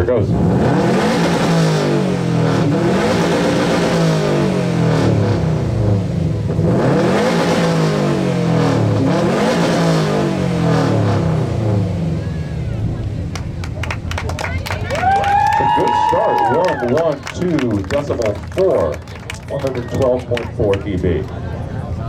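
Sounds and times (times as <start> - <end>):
car engine revving hard: 0.0 - 12.8.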